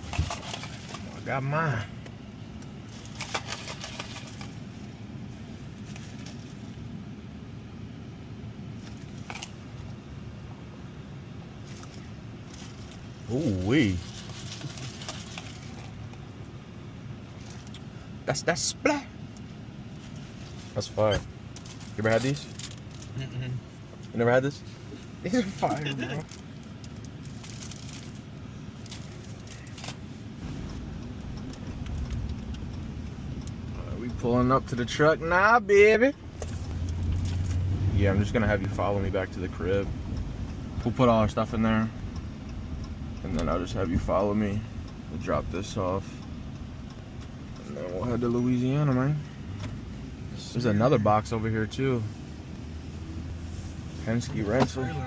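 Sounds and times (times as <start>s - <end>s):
crackling rustles: 0.0s - 1.4s, 2.6s - 6.8s, 11.6s - 16.3s, 17.2s - 18.0s, 19.4s - 33.7s, 36.2s - 39.3s
car interior rumble: 0.0s - 55.0s.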